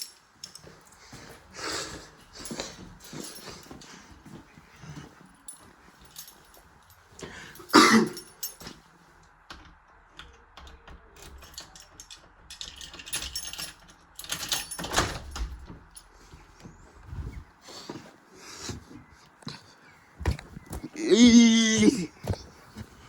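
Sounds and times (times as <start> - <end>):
keys jangling: 0.0 - 8.9, 11.2 - 16.2
door and lock handling: 9.5 - 16.1.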